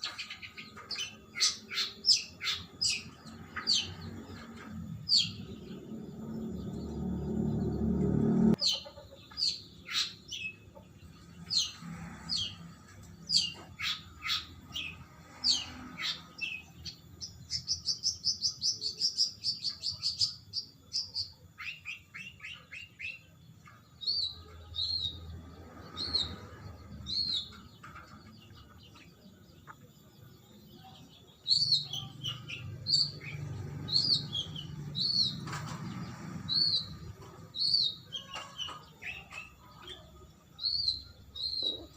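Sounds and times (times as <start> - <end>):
bird trill: 0.0 - 10.6, 36.5 - 41.9
bird song with sharp chirps: 0.0 - 41.9.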